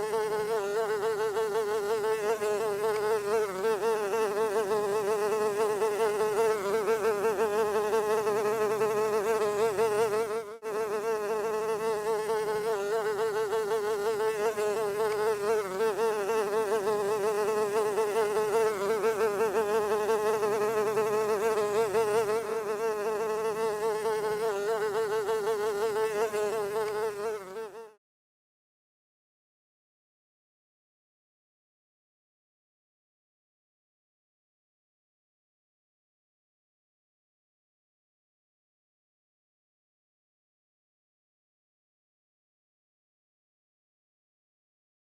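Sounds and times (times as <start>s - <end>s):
fly buzzing: 0.0s - 28.0s.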